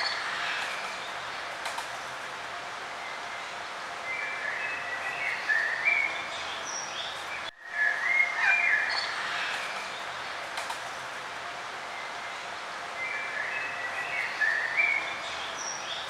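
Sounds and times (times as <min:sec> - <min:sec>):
steady outdoor hiss: 0:00.0 - 0:16.0
songbird chirping song: 0:02.9 - 0:10.5, 0:11.8 - 0:16.0.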